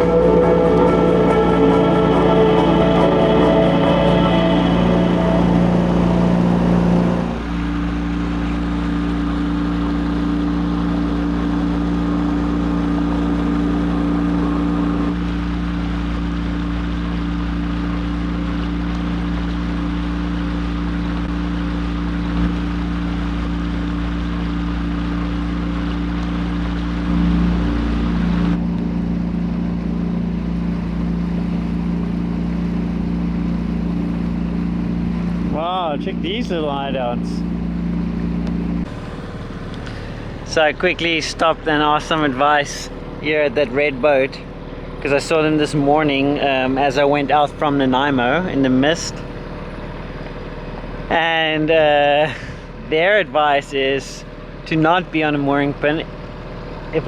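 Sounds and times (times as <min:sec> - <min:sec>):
music: 0:00.0 - 0:09.0, 0:27.0 - 0:31.6
boat engine droning: 0:00.0 - 0:57.0.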